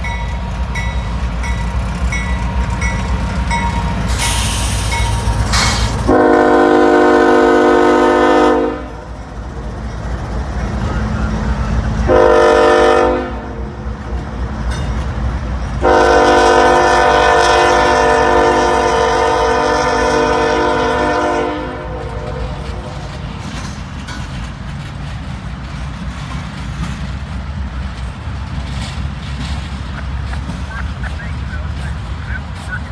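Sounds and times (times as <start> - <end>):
train rumbling past: 0.0 - 32.9
locomotive air horn blasts: 5.9 - 9.0, 12.1 - 13.6, 15.8 - 22.6.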